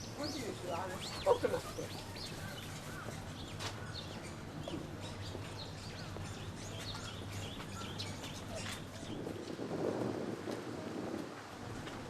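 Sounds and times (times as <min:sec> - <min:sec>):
small birds chirping: 0:00.0 - 0:09.6
low city hum: 0:00.0 - 0:12.0.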